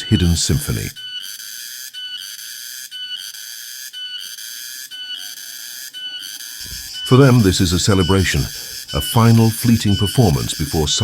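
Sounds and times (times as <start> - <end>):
cicadas buzzing: 4.3 - 11.0.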